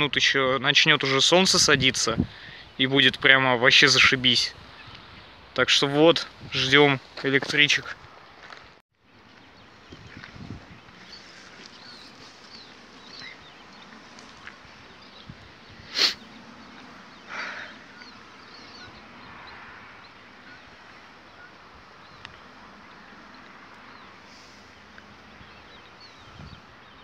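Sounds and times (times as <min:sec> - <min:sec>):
small birds chirping: 0:03.8 - 0:05.5, 0:07.8 - 0:27.0.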